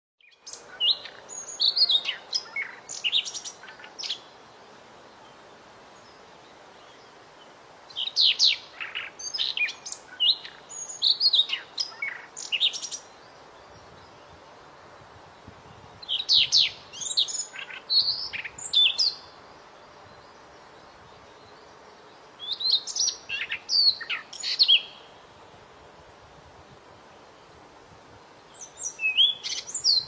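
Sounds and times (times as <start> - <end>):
bird singing whistles and trills: 0.2 - 4.2, 8.0 - 14.1, 15.7 - 19.3, 22.4 - 25.1, 28.5 - 30.0
faint steady hiss: 0.2 - 30.0.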